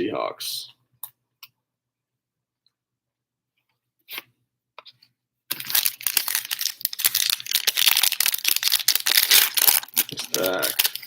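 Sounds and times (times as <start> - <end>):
foil wrapper tearing and crinkling: 5.5 - 11.0.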